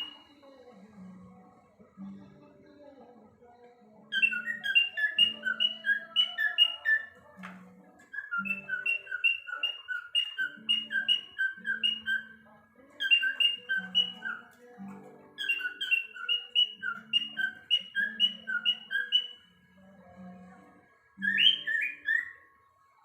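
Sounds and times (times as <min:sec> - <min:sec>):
cockatiel chirping: 0:00.0 - 0:00.4, 0:04.1 - 0:07.2, 0:08.0 - 0:12.4, 0:13.0 - 0:19.5, 0:21.2 - 0:22.5
background music: 0:00.0 - 0:23.0.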